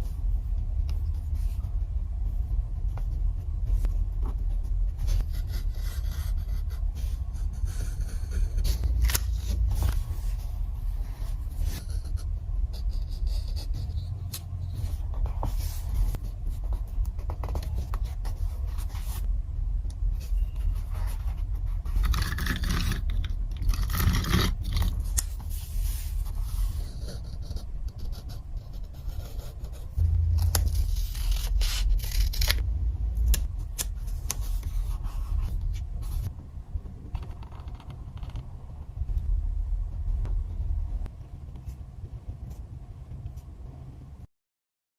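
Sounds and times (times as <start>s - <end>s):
steady low rumble: 0.0s - 44.3s
paper scraping and rubbing: 20.2s - 32.6s.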